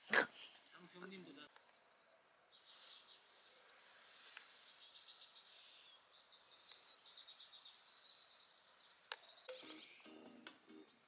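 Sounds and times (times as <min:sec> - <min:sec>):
small birds chirping trills: 0:00.7 - 0:11.0
soft background music: 0:09.5 - 0:11.0.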